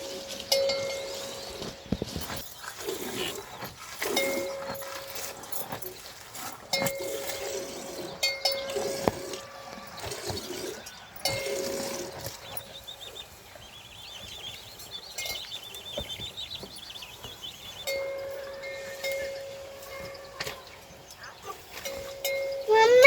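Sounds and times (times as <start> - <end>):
livestock bell clanking: 0.0 - 2.8, 4.0 - 12.9, 17.8 - 23.0.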